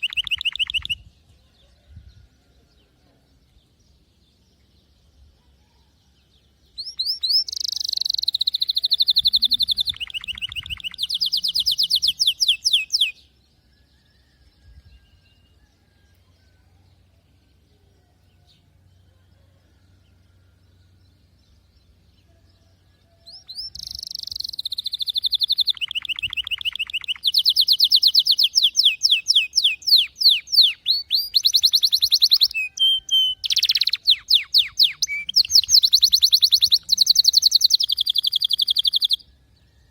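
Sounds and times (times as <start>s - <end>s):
canary singing trills: 0.0s - 1.9s, 4.9s - 39.9s.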